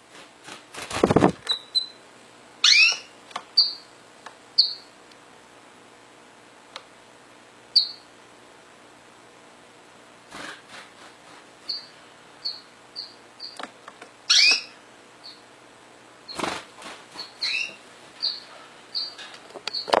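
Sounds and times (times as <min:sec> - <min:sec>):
canary chirping: 0:01.5 - 0:02.0, 0:02.6 - 0:03.9, 0:04.6 - 0:04.9, 0:07.7 - 0:08.1, 0:11.6 - 0:13.6, 0:14.3 - 0:15.4, 0:17.1 - 0:20.0
downward-sweeping bird calls: 0:02.6 - 0:03.9, 0:04.6 - 0:04.9, 0:07.7 - 0:08.1, 0:11.6 - 0:13.6, 0:14.3 - 0:15.5, 0:17.1 - 0:20.0.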